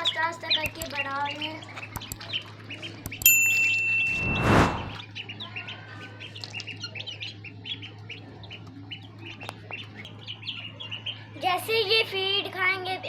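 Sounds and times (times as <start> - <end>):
chicks and ducklings peeping: 0.0 - 3.2, 5.0 - 13.0
loud brief burst of noise: 4.1 - 5.0.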